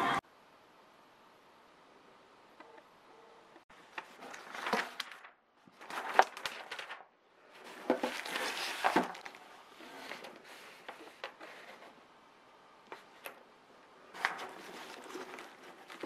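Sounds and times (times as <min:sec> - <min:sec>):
rustling handling noise: 0:03.8 - 0:12.1, 0:14.0 - 0:16.0.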